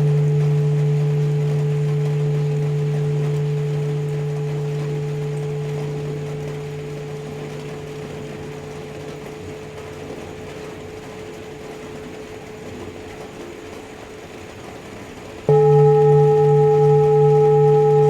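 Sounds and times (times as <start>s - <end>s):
singing bowl ringing: 0.0s - 10.8s, 15.5s - 18.0s.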